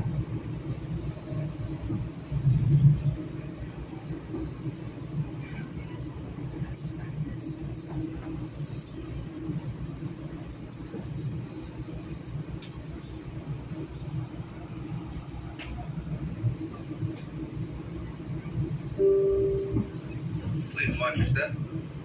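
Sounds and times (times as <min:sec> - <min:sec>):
train interior rumble: 0:00.0 - 0:22.0
light clinks and rattles: 0:04.9 - 0:14.4.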